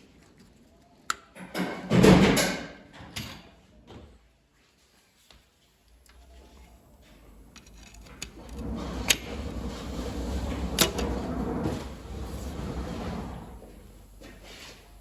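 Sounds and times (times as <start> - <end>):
engine parts being handled: 6.1 - 9.3.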